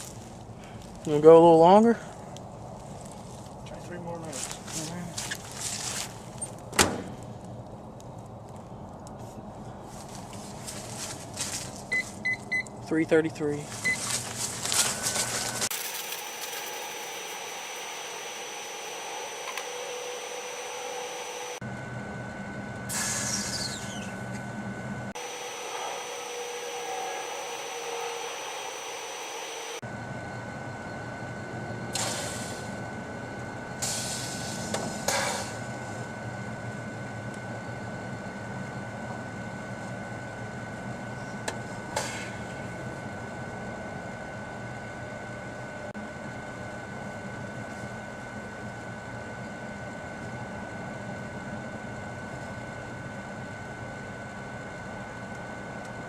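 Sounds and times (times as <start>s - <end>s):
microwave oven humming: 5.6s - 56.0s
brief falling hiss: 22.9s - 23.7s.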